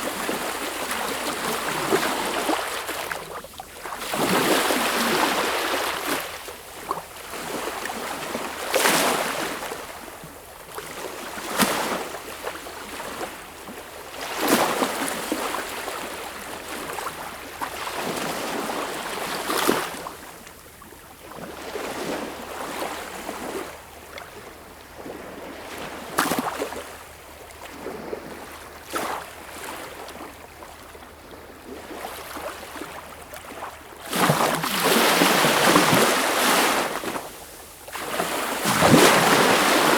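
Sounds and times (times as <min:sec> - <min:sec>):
sea waves breaking: 0:38.0 - 0:39.9.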